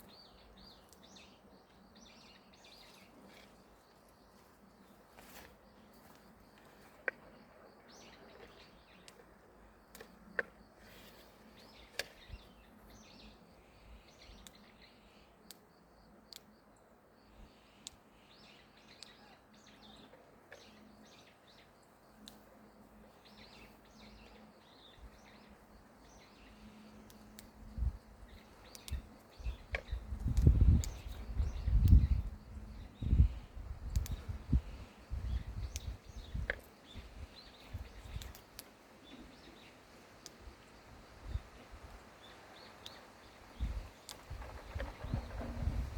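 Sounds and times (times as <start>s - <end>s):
small birds chirping: 0.0s - 45.9s
sharp clicks: 28.6s - 31.2s, 33.9s - 34.3s, 38.1s - 38.7s.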